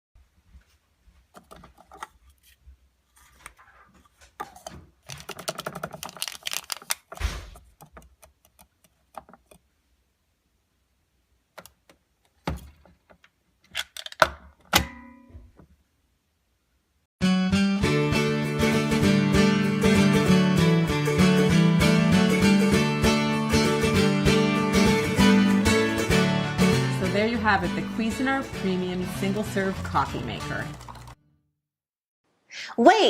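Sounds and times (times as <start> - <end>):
small hard objects clattering: 5.0 - 7.2.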